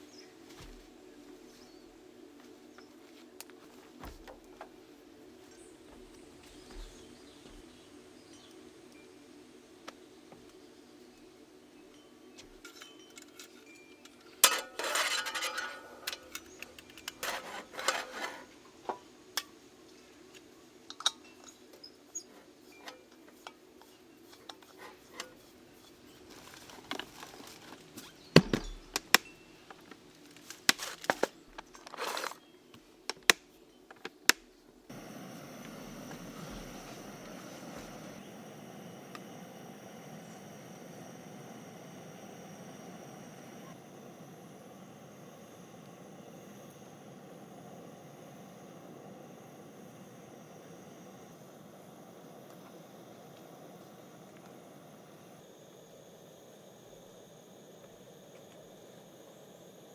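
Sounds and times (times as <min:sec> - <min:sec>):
camp cookware clinking: 0:12.6 - 0:18.5
steady hiss: 0:34.8 - 0:59.9.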